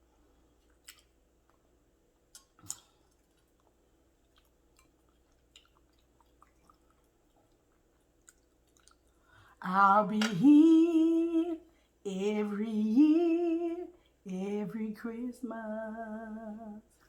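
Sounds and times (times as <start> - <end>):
faint chewing: 0.0 - 9.6.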